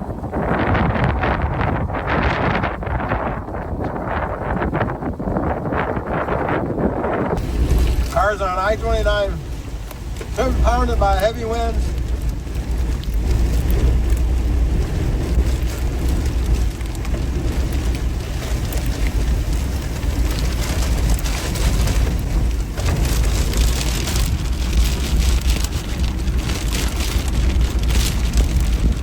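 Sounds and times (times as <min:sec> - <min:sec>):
wind buffeting rumble: 0:00.0 - 0:29.0
heavy rain pelting a car: 0:07.4 - 0:29.0.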